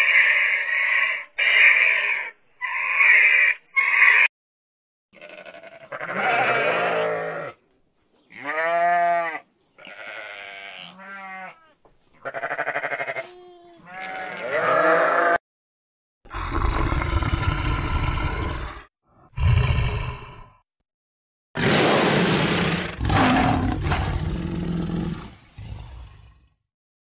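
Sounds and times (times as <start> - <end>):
lamb bleating: 5.2 - 7.6, 8.3 - 15.4
lion growling: 16.3 - 20.6, 22.4 - 26.6.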